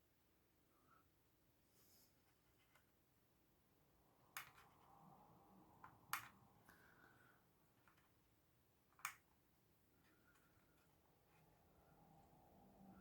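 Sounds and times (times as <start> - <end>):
faint sharp plastic clicks: 4.3 - 4.9, 5.8 - 8.2, 8.8 - 9.4.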